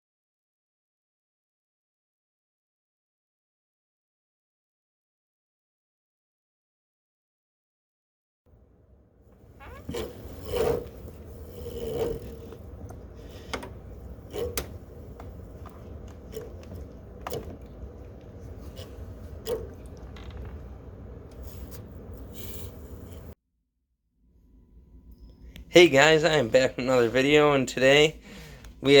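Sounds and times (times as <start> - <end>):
steady low hum: 8.5 - 23.4
scraping in cat litter: 21.3 - 23.4.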